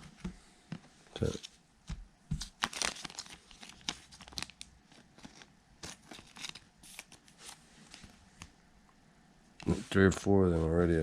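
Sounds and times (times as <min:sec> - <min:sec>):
trading cards and wrapper crinkling: 0:02.3 - 0:08.1.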